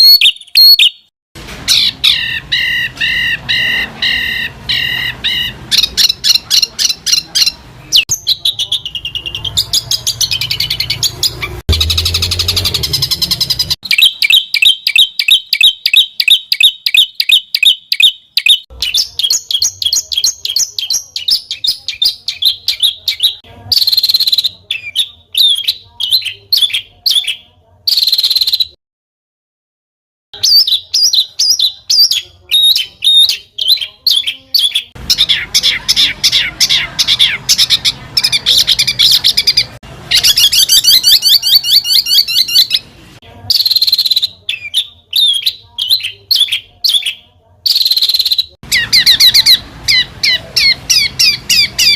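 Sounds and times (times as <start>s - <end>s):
songbird chirps and trills: 1.8s - 28.8s.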